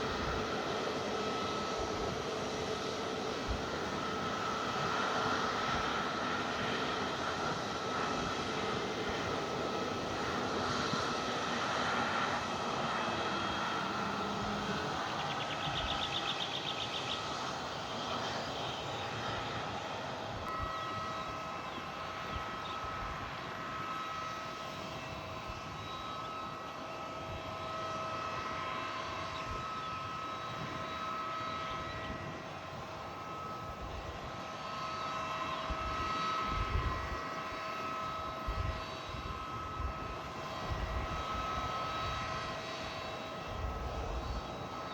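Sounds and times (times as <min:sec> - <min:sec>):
airliner engines whining: 0:00.0 - 0:44.9.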